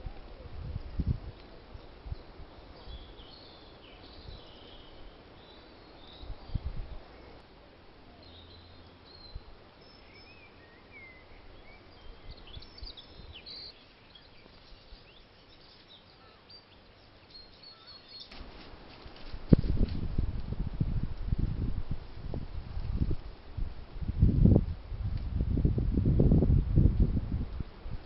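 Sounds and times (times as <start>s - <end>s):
faint background hiss: 0.0s - 28.0s
birds chirping and calling: 8.2s - 18.4s.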